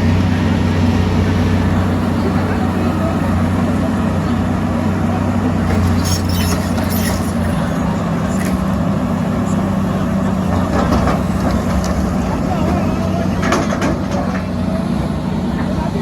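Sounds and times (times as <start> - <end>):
heavy diesel engine humming: 0.0 - 16.0
clatter: 13.4 - 14.5.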